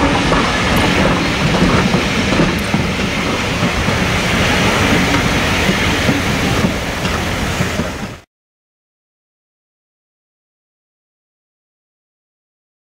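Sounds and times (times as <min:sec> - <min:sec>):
train wheels on rails: 0:00.0 - 0:08.3.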